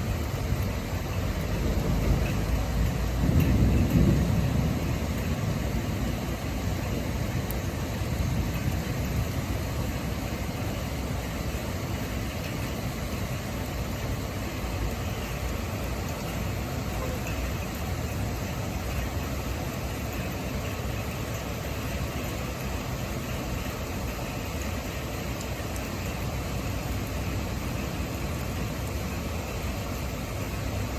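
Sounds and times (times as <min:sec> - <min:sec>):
strong wind: 0:00.0 - 0:24.5
heavy rain: 0:00.0 - 0:30.9.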